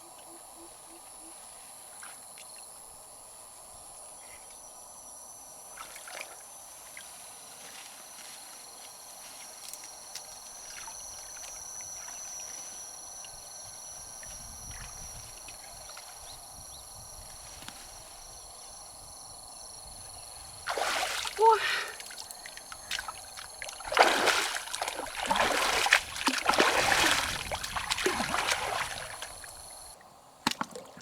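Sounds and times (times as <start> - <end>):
river water trickling: 9.6 - 17.0, 20.5 - 31.0
small clicks and splashes: 22.0 - 29.7, 30.4 - 31.0.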